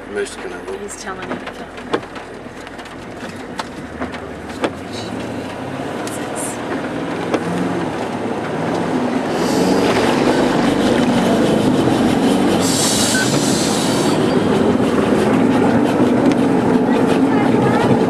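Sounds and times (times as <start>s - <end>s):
engine running under load: 0.0s - 18.0s.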